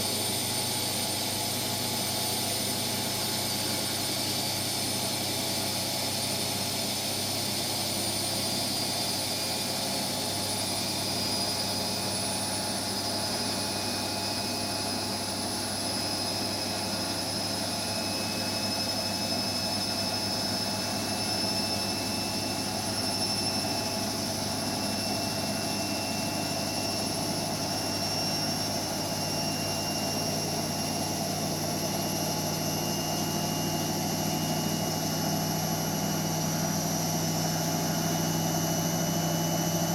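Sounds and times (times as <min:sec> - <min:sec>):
washing machine motor whine: 0:00.0 - 0:39.9.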